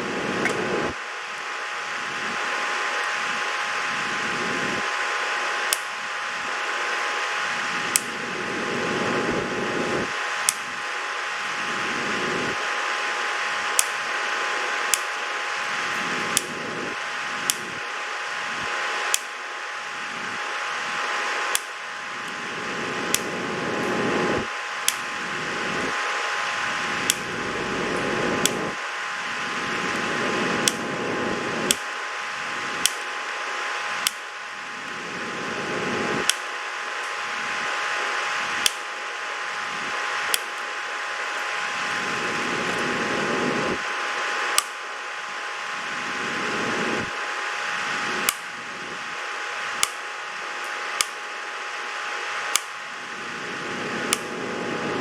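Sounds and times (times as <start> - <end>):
faint hum: 0.0 - 55.0
fan whirring: 0.0 - 55.0
sharp click: 0.4 - 0.6, 5.7 - 5.9, 7.9 - 8.2, 10.4 - 10.7, 13.8 - 14.0, 16.3 - 16.6, 17.4 - 17.8, 19.1 - 19.4, 21.5 - 21.8, 23.1 - 23.3, 24.8 - 25.1, 27.0 - 27.3, 30.6 - 30.9, 32.8 - 33.1, 34.0 - 35.0, 36.2 - 37.2, 38.6 - 38.9, 44.5 - 44.8, 48.2 - 48.5, 49.8 - 50.0, 50.6 - 51.2, 52.5 - 52.8, 54.1 - 54.4.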